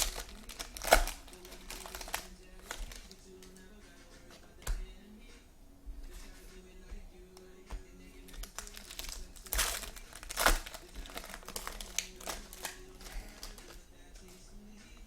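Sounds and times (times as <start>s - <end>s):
card packs ripped open: 0.0s - 3.2s, 8.2s - 13.8s
card pack wrappers crinkling: 0.0s - 3.6s, 8.2s - 13.8s.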